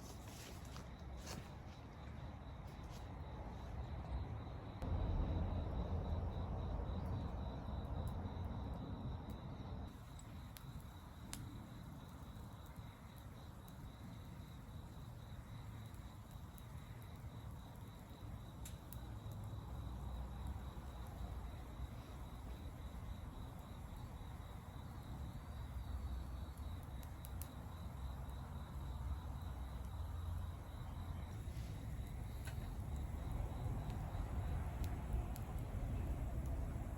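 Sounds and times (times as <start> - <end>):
constant low rumble: 0.0 - 36.9
insects trilling: 5.5 - 36.9.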